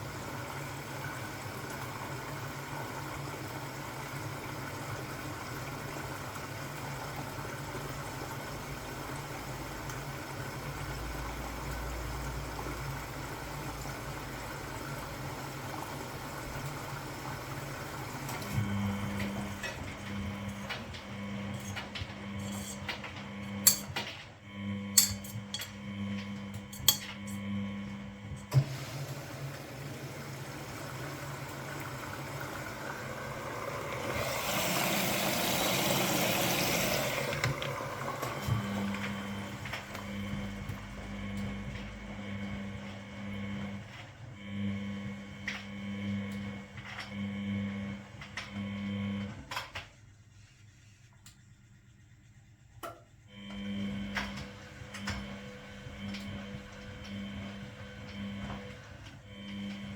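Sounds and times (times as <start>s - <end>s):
washing machine electric hum: 0.0s - 59.9s
washing machine rushing hiss: 28.4s - 44.4s.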